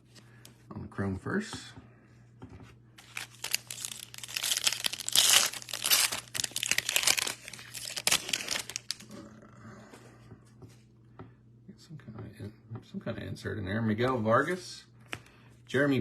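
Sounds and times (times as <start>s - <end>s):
plastic wrapper tearing and crinkling: 3.0s - 9.1s.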